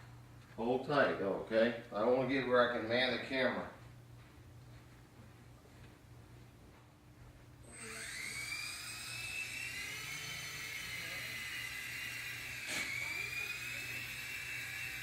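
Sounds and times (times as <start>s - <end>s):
toy helicopter motor whine: 7.6s - 15.0s.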